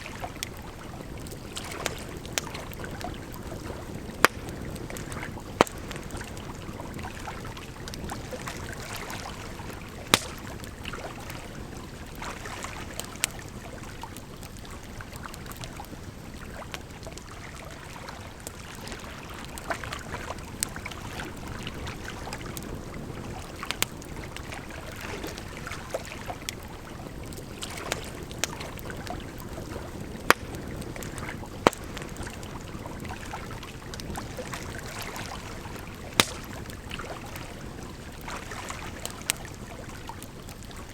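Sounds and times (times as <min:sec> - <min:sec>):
campfire crackling and popping: 0:00.0 - 0:40.9
flowing water: 0:00.0 - 0:40.9.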